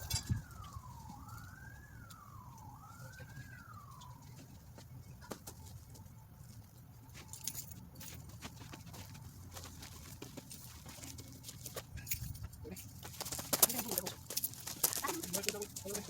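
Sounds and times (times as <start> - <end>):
faint emergency siren wailing: 0.0 - 11.7, 13.6 - 16.0.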